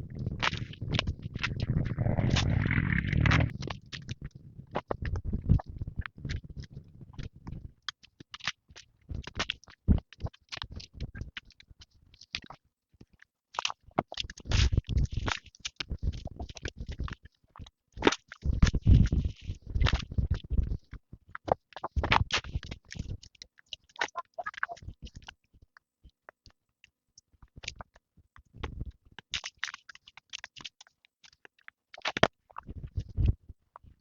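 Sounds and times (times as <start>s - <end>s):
scraping: 1.5s - 3.5s.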